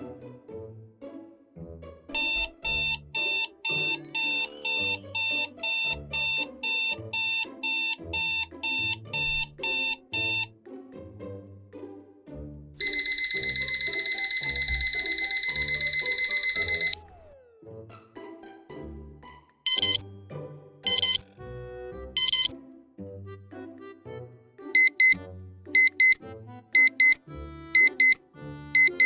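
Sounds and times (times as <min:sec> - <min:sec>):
background music: 0:00.0 - 0:29.0
high beeping alarm: 0:02.2 - 0:10.5, 0:12.8 - 0:17.0, 0:19.7 - 0:20.0, 0:20.9 - 0:21.2, 0:22.2 - 0:22.5, 0:24.8 - 0:25.2
rapidly pulsing high alarm tone: 0:02.2 - 0:10.5, 0:12.8 - 0:17.0.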